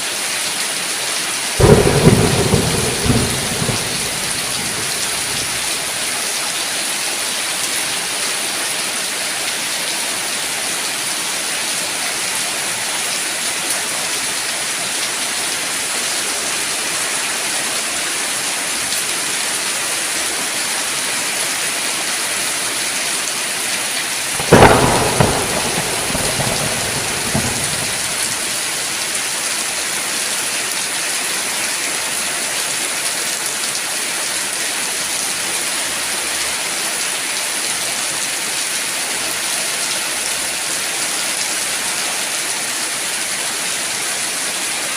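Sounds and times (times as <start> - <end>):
heavy rain: 0.0 - 44.9
thunderclap rumbling: 1.6 - 5.9, 24.4 - 28.9.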